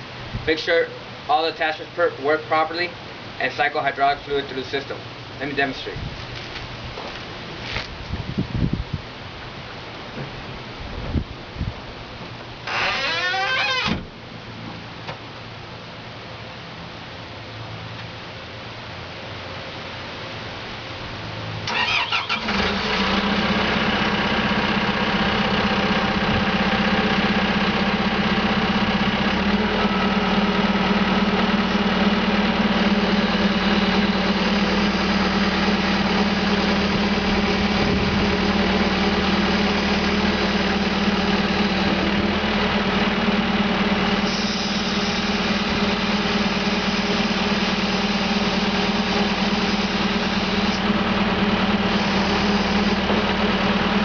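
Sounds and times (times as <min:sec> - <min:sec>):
diesel engine starting and idling: 0:12.5 - 0:15.4, 0:21.0 - 0:54.0.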